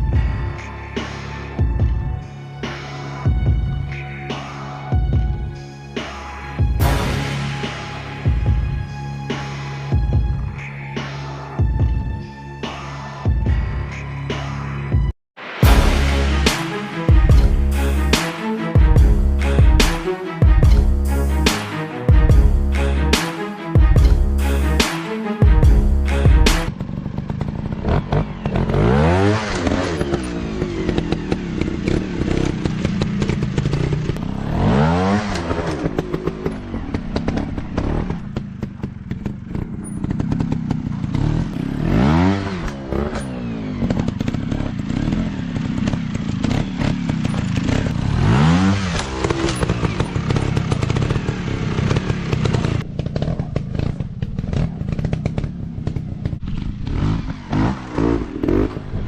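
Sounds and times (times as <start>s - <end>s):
dirt bike engines revving: 25.6s - 59.0s.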